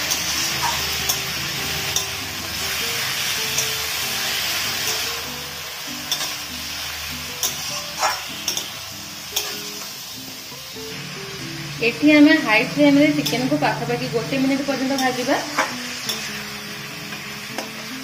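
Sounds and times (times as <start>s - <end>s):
chicken sizzling in hot oil: 0.0s - 18.0s
spatula scraping a pan: 7.4s - 8.8s.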